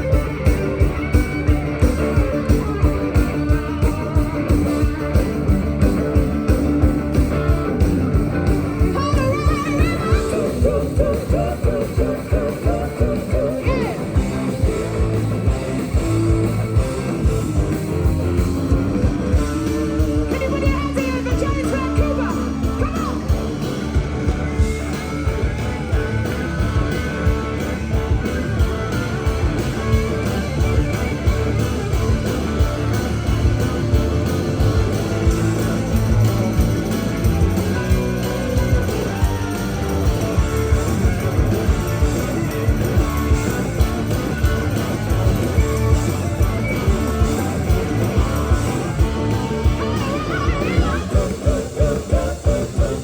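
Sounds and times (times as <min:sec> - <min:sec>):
drum beat: 0:00.0 - 0:53.0
live rock band playing: 0:00.0 - 0:53.0
person singing: 0:09.0 - 0:14.2, 0:49.6 - 0:53.0.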